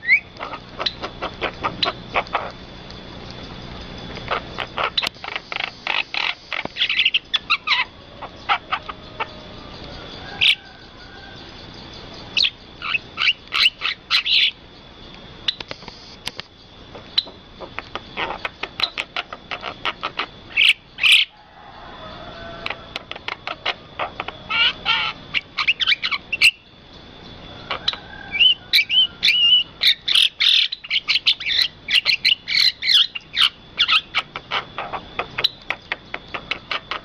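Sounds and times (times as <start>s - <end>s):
birds chirping sharply: 3.4s - 14.6s.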